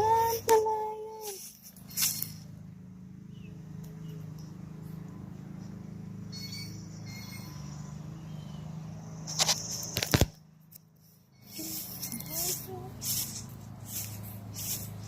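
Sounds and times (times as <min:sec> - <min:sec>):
faint bird chirps: 0:01.1 - 0:02.5, 0:03.2 - 0:10.0, 0:10.9 - 0:13.4.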